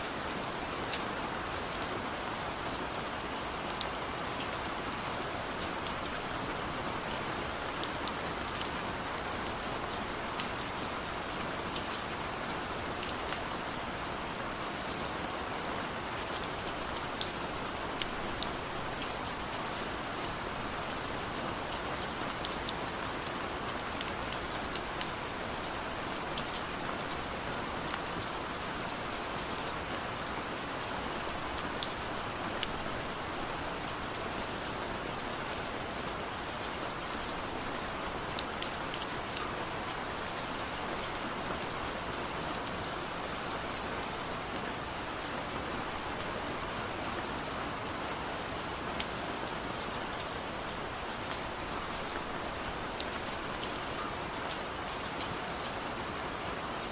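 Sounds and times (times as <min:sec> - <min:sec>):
raindrops ticking on a surface: 0:00.0 - 0:47.4
steady rainfall: 0:00.0 - 0:56.9.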